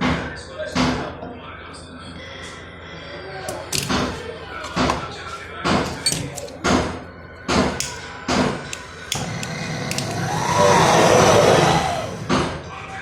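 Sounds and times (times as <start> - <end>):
metal tools knocking and clanking: 3.5 - 5.1, 5.7 - 6.9.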